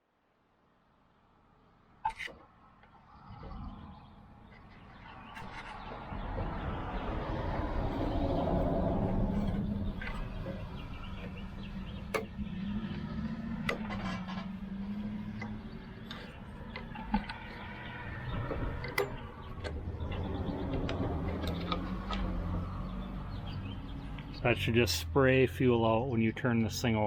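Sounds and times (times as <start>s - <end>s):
clicks of hand tools and metal parts: 2.1s - 2.9s, 12.1s - 13.0s, 13.6s - 14.5s, 15.4s - 22.4s.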